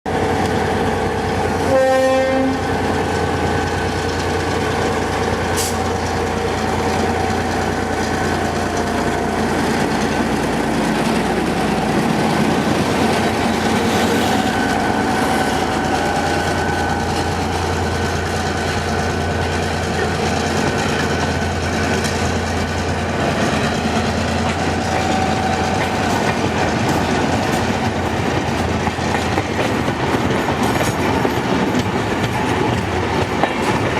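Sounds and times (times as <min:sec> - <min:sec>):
locomotive horn blast: 0:01.6 - 0:02.7.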